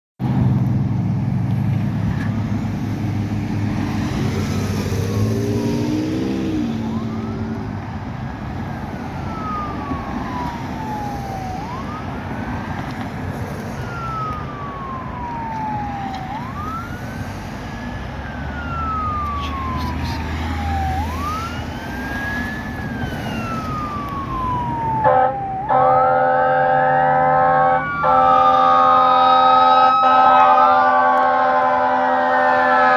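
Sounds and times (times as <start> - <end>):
truck engine: 0.2 - 32.9
siren wailing: 3.8 - 32.9
loud horn blast: 25.0 - 32.9.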